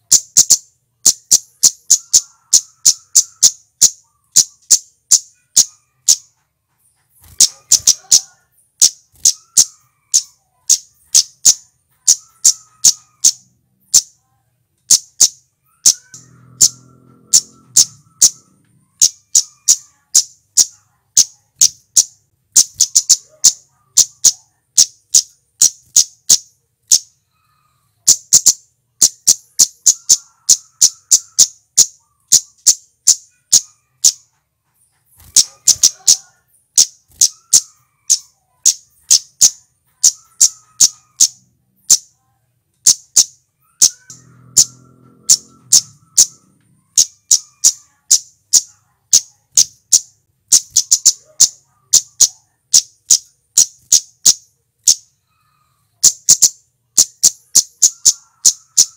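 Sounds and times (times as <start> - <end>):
bird giving sharp chip calls: 21.9 - 27.0, 42.8 - 55.0.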